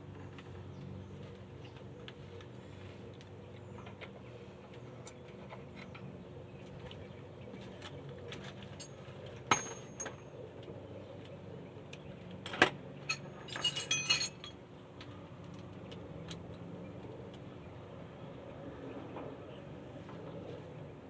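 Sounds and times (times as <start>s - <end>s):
metal tools clinking: 8.3s - 10.2s, 12.5s - 14.6s.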